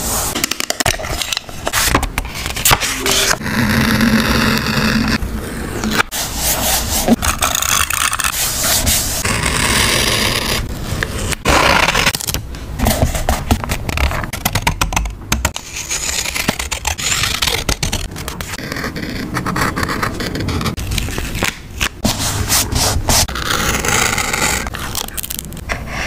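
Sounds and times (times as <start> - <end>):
paper scraping and rubbing: 1.5 - 14.3, 15.6 - 25.1.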